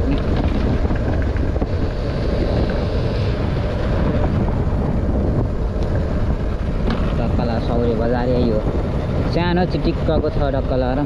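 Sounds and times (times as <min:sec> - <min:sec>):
motorcycle engine running: 0:00.0 - 0:11.0
wind buffeting microphone: 0:00.0 - 0:11.0.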